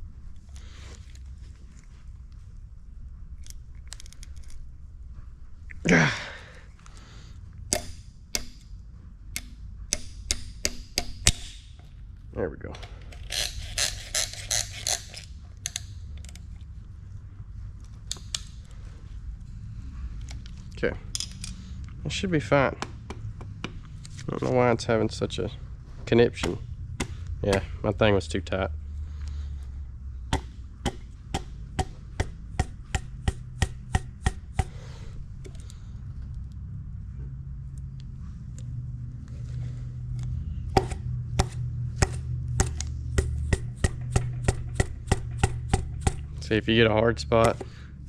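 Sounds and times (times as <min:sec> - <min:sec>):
rubber mallet tapping: 0:09.3 - 0:11.6, 0:30.3 - 0:34.8, 0:40.8 - 0:46.3
ratchet strokes: 0:13.2 - 0:15.9, 0:40.8 - 0:46.3.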